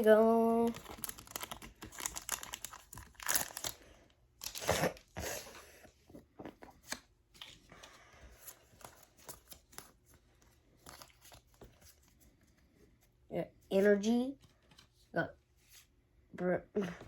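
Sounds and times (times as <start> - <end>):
foil wrapper tearing and crinkling: 0.6 - 3.8, 4.4 - 5.0.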